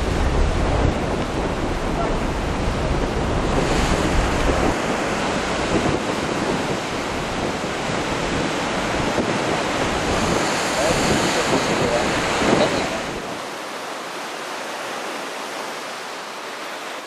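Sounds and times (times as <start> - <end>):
low rumble: 0.0 - 5.8
steady rushing noise: 0.0 - 17.0.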